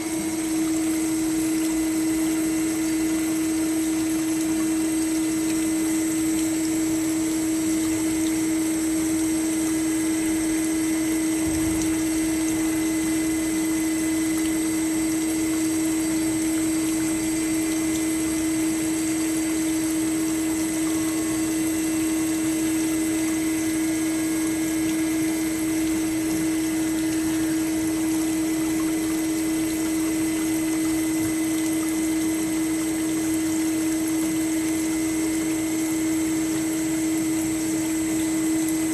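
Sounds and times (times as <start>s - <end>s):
band saw humming: 0.0s - 3.2s, 16.3s - 29.6s.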